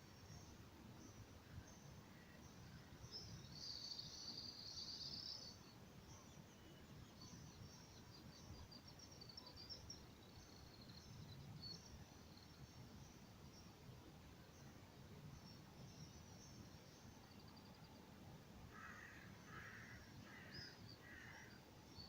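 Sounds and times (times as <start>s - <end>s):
low background hiss: 0.0s - 22.0s
birds chirping and twittering: 18.7s - 22.0s.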